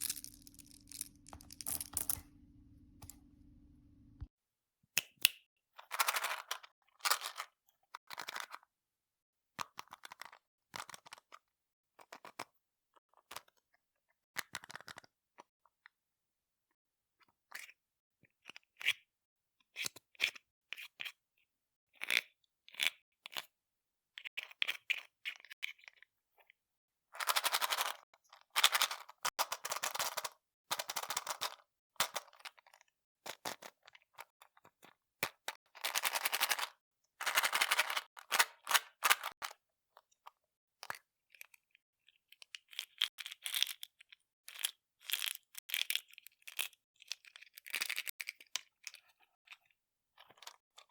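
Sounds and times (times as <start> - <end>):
candy wrappers crinkling: 0.0 - 2.2.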